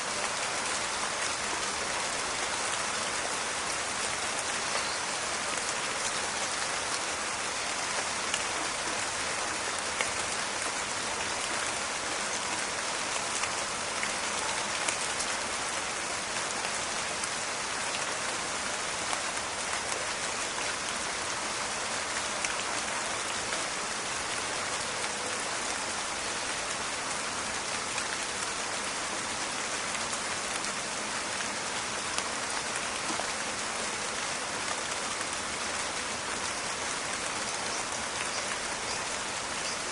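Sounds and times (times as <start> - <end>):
rain falling steadily: 0.0 - 39.9
raindrops ticking on leaves: 0.0 - 39.9.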